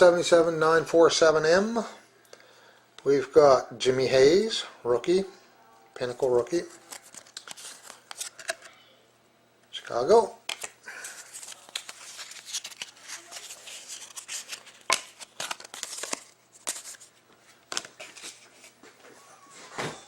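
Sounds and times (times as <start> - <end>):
papery wrapper rustling: 6.6 - 8.7, 10.9 - 18.7
cards clicking and sliding: 6.8 - 8.7, 10.5 - 17.1.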